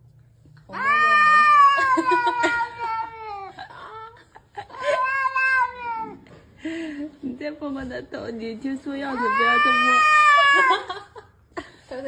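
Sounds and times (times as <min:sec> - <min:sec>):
cat yowling: 0:00.7 - 0:03.5, 0:04.8 - 0:06.2, 0:09.2 - 0:10.9.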